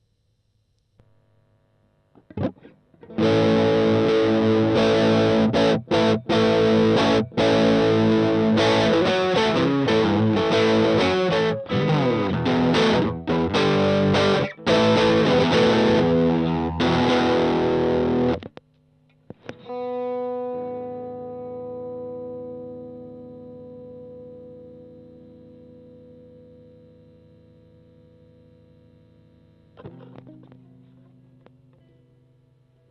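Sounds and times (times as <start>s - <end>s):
distorted electric guitar strumming: 2.1s - 18.6s, 19.3s - 32.6s.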